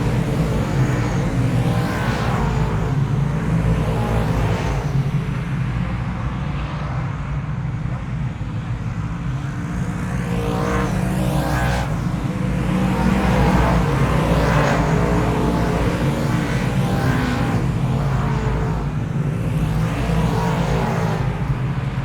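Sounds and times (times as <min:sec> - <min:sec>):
vehicle engine running: 0:09.3 - 0:22.0.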